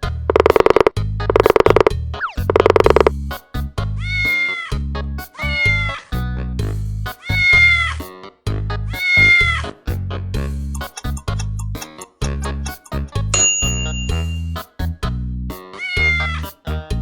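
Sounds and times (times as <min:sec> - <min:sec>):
music with heavy bass beat: 0:00.0 - 0:04.1, 0:04.8 - 0:13.4.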